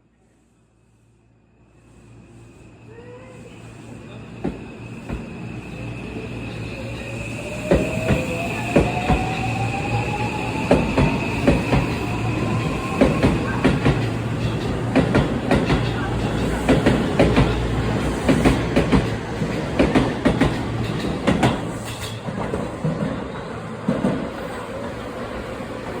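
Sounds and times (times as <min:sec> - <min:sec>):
train wheels clacking over rail joints: 0:12.9 - 0:23.2.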